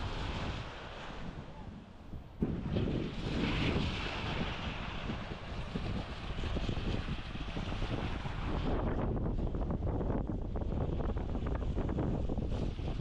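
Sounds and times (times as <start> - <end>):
sea waves washing in: 0.0 - 9.4
wind buffeting microphone: 0.0 - 13.0.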